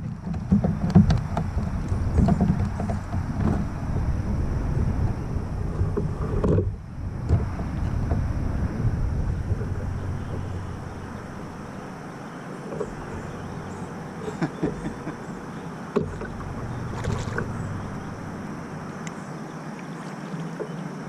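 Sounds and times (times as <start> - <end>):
knocks and clicks of gear: 0.0 - 3.7, 5.9 - 8.3, 12.7 - 19.2
wind rumble on microphone: 0.0 - 19.4
hiss of wind and water: 0.0 - 21.0.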